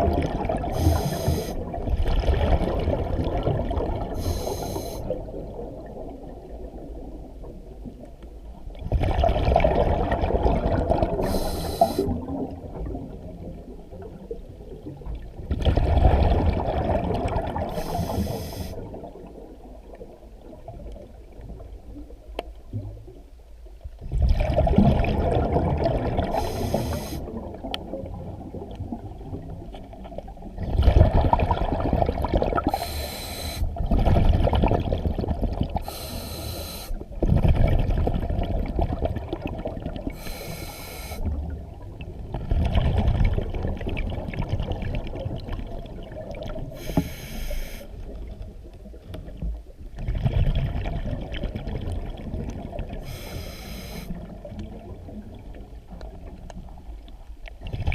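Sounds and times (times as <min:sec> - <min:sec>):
exhaled bubbles bursting: 0:00.0 - 0:04.2, 0:08.8 - 0:21.0, 0:24.0 - 0:32.9, 0:33.6 - 0:35.9, 0:37.2 - 0:40.2, 0:41.4 - 0:46.9, 0:48.0 - 0:53.2, 0:57.6 - 0:57.9
low underwater rumble: 0:00.0 - 0:36.1, 0:37.0 - 0:40.4, 0:41.2 - 0:57.9.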